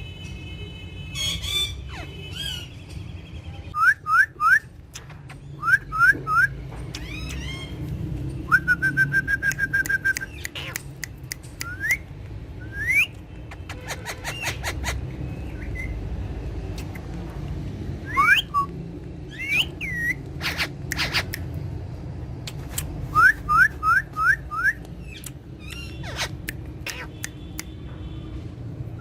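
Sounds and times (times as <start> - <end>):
parakeet squawks and clicks: 4.1 - 8.2, 9.3 - 16.0, 16.7 - 17.3, 18.1 - 21.8, 22.4 - 27.9
parakeets whistling rising notes: 18.1 - 18.7, 19.3 - 20.7.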